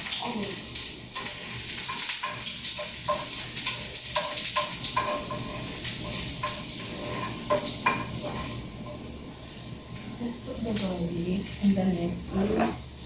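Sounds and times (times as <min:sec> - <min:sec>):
garlic sizzling in oil: 0:00.0 - 0:13.0.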